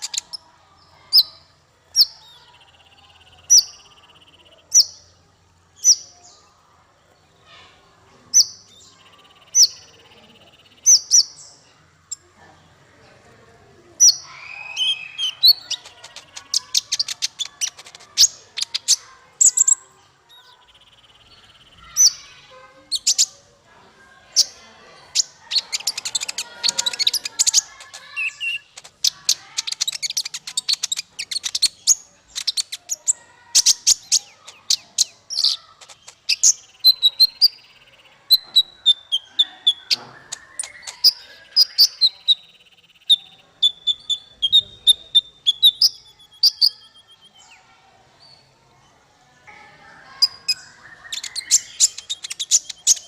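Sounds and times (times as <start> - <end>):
songbird chirping and trilling: 0.0 - 53.0
whistled bird notes: 14.0 - 22.2, 36.2 - 47.7.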